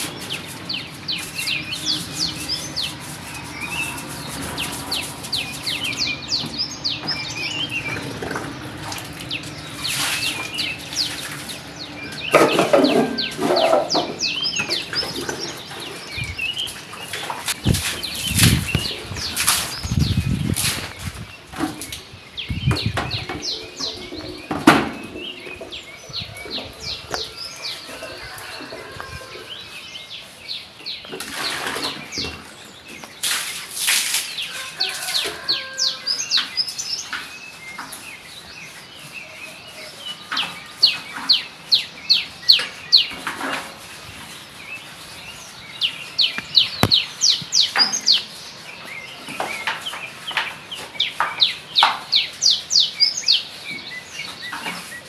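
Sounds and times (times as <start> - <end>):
stiff brush scrubbing a floor: 0.0 - 6.4, 7.8 - 21.9, 23.4 - 55.0.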